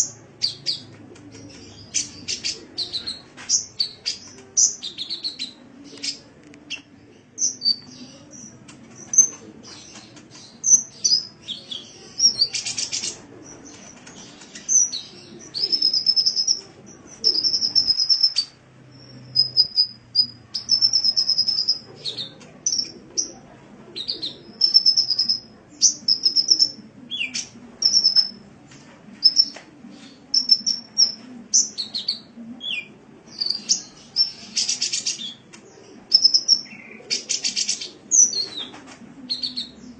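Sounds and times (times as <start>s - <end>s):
faint low hum: 0.0s - 39.9s
sunbird chirps and trills: 24.6s - 28.3s, 30.4s - 31.8s.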